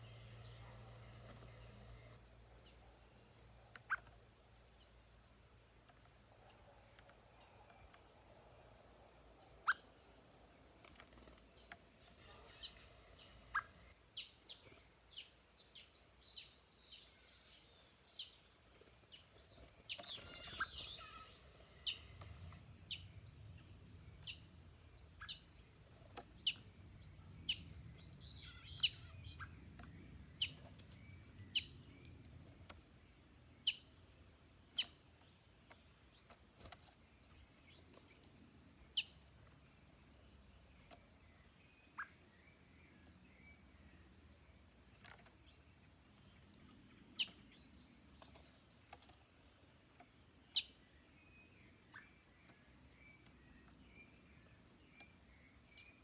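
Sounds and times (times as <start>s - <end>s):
birds twittering: 0.0s - 2.2s, 11.6s - 13.9s, 19.3s - 31.8s
bird chirps: 12.2s - 18.4s, 19.1s - 23.1s, 26.4s - 31.8s.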